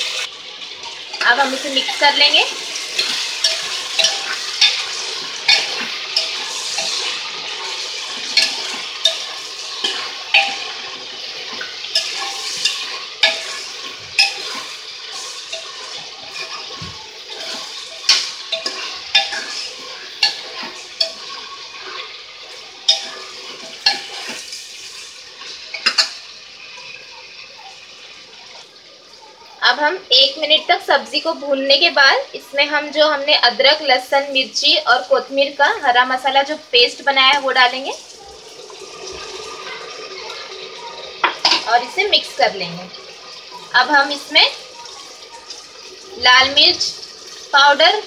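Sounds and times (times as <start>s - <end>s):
vegetables sizzling in oil: 0.0s - 48.0s
metal ladle scraping pot: 2.7s - 22.2s.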